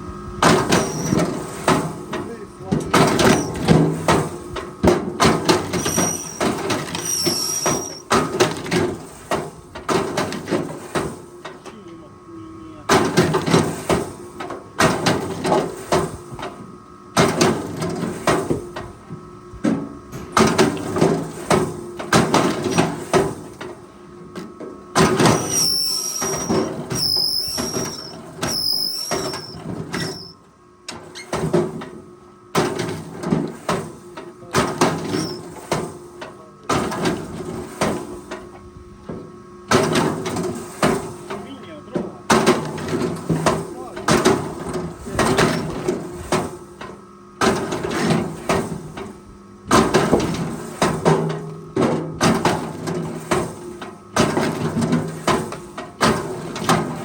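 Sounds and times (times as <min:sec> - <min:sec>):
machinery engine hum: 0:00.0 - 0:14.8, 0:15.4 - 0:30.7
short high squeaks: 0:00.8 - 0:01.2, 0:05.7 - 0:08.1, 0:25.2 - 0:30.4, 0:35.1 - 0:35.6.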